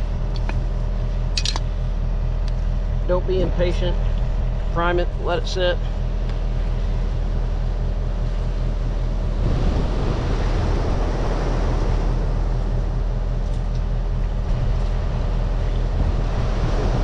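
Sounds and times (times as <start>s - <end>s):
engine idling: 0.0s - 17.0s
wind on microphone: 6.4s - 17.0s.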